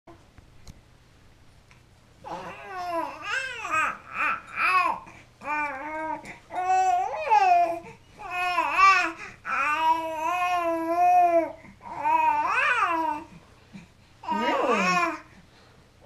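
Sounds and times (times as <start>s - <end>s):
baby cooing and babbling: 2.2s - 13.4s, 14.2s - 15.3s.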